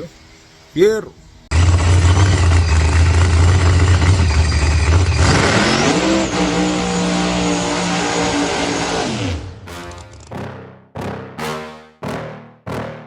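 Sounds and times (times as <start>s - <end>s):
race car engine running: 1.5s - 10.3s.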